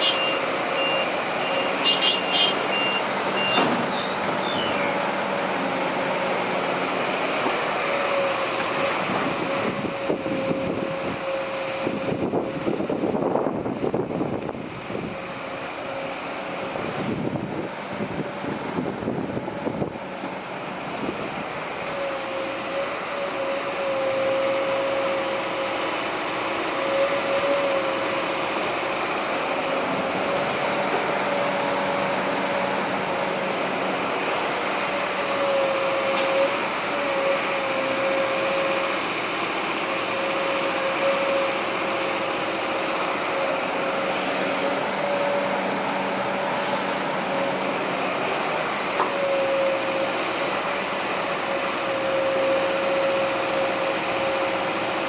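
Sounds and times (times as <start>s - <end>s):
heavy diesel machinery running: 0.0s - 55.0s
machinery whine: 0.1s - 14.5s.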